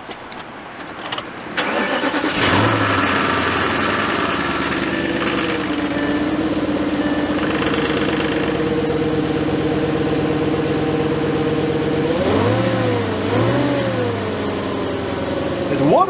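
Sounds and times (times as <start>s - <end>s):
car engine idling and revving: 0.8s - 16.0s.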